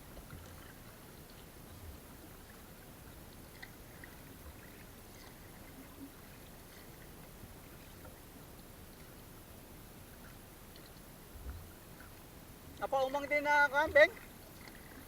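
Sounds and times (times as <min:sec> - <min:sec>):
water trickling and lapping: 0:00.0 - 0:15.0.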